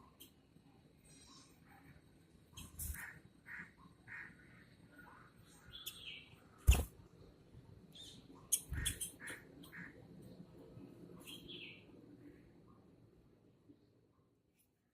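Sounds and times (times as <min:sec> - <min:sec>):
birds chirping: 0:02.5 - 0:06.9, 0:07.9 - 0:10.0.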